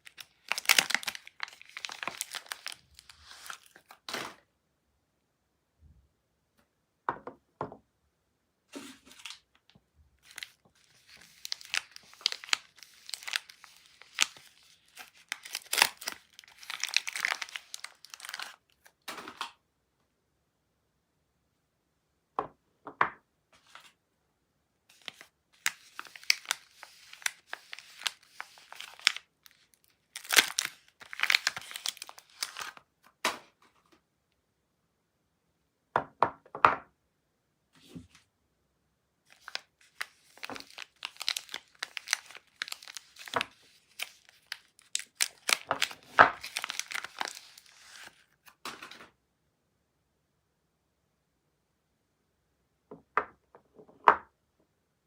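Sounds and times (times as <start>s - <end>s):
wrapping tearing and crinkling: 0.0s - 4.4s, 8.8s - 9.4s, 10.2s - 19.0s, 24.9s - 32.8s, 39.3s - 48.6s.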